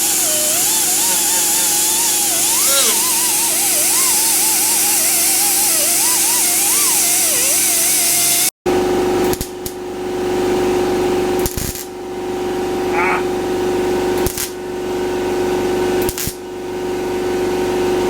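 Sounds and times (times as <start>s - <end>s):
power tool hissing and whining: 0.0s - 8.5s.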